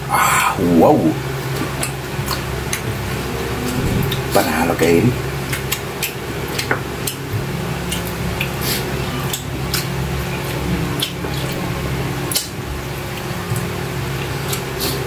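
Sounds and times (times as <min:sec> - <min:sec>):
low background hum: 0:00.0 - 0:15.0
wet chewing and lip smacks: 0:07.9 - 0:11.6.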